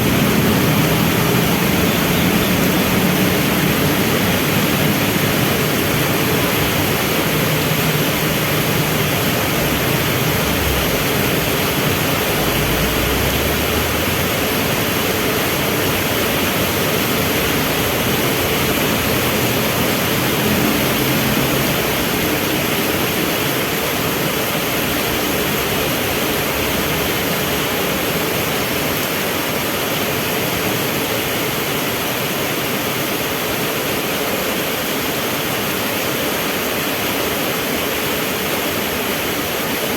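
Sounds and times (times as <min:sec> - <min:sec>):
vehicle engines idling: 0:00.0 - 0:29.0
heavy rain: 0:00.0 - 0:39.9.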